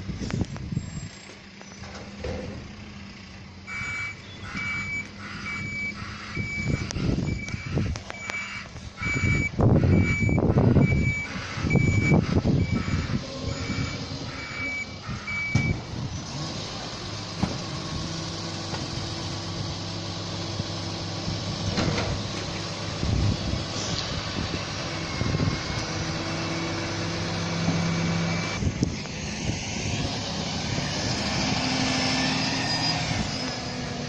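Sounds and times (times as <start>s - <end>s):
diesel engine running: 0.0s - 34.0s
reversing alarm beeping: 3.7s - 15.8s.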